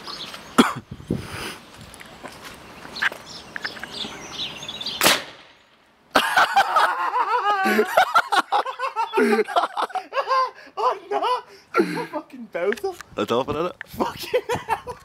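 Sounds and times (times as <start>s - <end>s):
potato cannon bang: 5.0s - 5.5s
people laughing: 6.1s - 12.2s, 14.0s - 15.0s.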